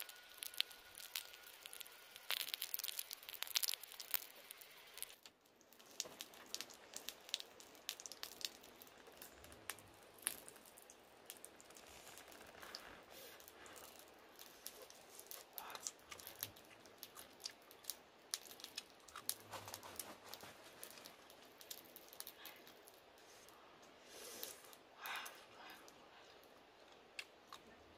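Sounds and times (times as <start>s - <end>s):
crunching and tearing while chewing: 0.0s - 5.2s, 5.8s - 22.8s.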